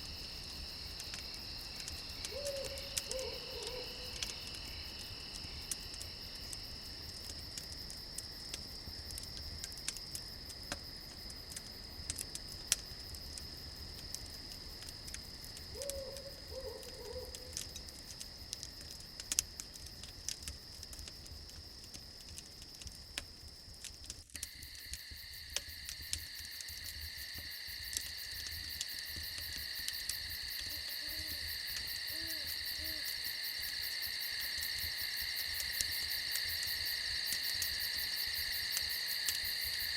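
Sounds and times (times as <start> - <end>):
campfire crackling: 0.0 - 39.9
crickets chirring: 0.0 - 39.9
night animal calling: 2.3 - 4.3, 15.7 - 17.6, 30.6 - 33.2.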